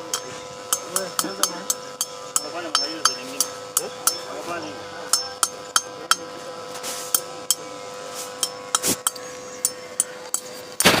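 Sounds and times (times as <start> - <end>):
metal tapping on metal: 0.0 - 4.3, 5.1 - 6.3
burst of noise: 10.8 - 11.0.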